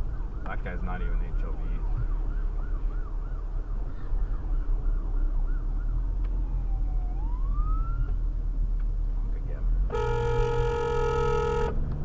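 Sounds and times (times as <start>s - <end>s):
emergency vehicle siren: 0.0s - 8.3s
car road rumble: 0.0s - 12.0s.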